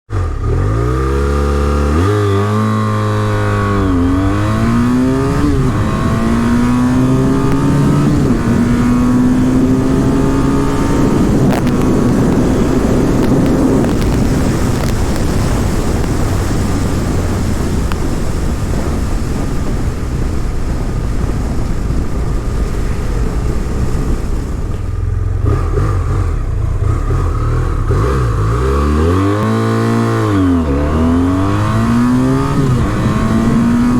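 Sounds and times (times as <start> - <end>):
motorcycle engine accelerating: 0.1 - 33.9
rushing wind at high speed: 0.1 - 33.9.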